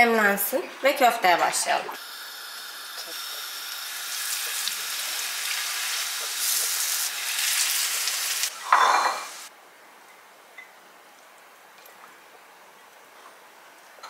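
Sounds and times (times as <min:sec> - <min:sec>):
patties sizzling in oil: 0:02.0 - 0:09.5.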